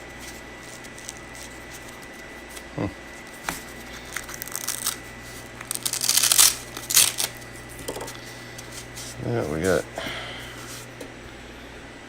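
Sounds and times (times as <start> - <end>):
plastic packaging crinkling: 0.2 - 2.3, 3.4 - 8.1.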